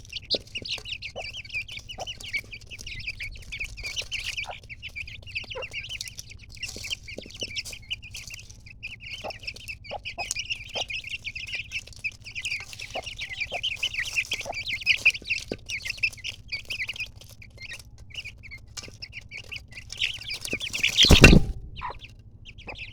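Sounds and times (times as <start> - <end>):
chicks peeping: 0.0 - 22.9
loud rustling thump: 20.8 - 22.0.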